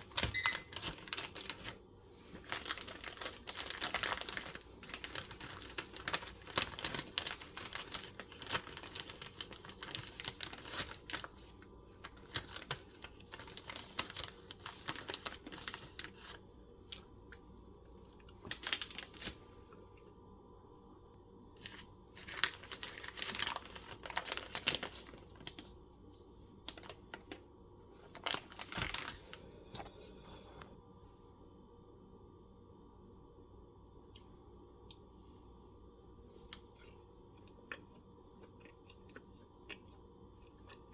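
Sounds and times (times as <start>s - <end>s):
crinkling and tearing handling noise: 0.0s - 20.1s, 20.9s - 25.8s, 26.5s - 30.8s.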